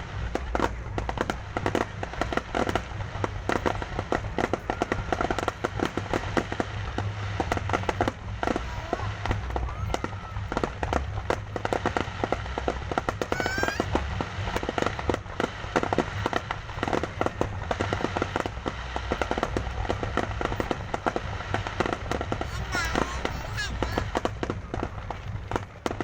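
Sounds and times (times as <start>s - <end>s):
fireworks crackling and popping: 0.0s - 26.0s
firework rising whistle: 13.1s - 14.0s.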